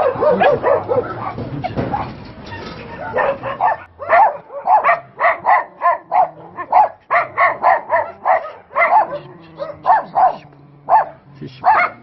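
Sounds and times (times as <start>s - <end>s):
dogs barking: 0.0s - 2.2s, 2.9s - 12.0s.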